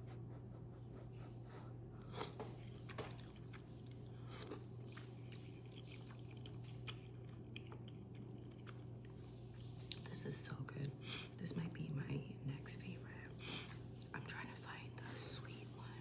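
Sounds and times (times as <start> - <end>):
chewing rice cake: 0.6 - 10.1, 13.3 - 14.2.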